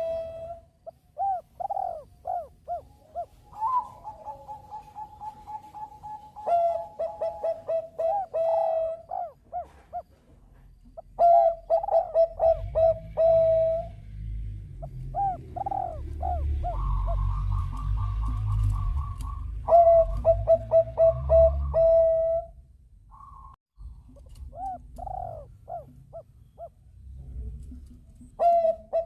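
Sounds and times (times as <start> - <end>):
dove cooing: 0.0 - 10.2, 10.8 - 14.0, 14.8 - 23.5, 24.1 - 26.8, 27.6 - 29.0.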